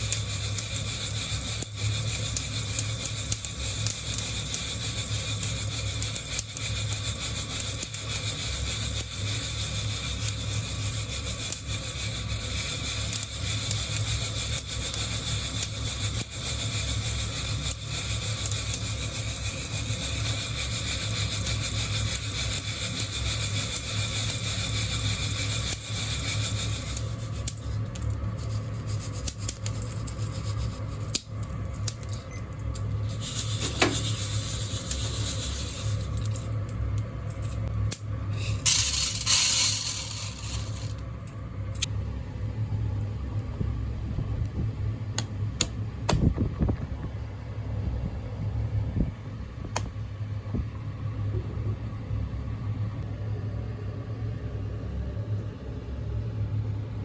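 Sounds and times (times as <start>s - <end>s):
coffee beans rattling in roaster: 0.0s - 42.7s.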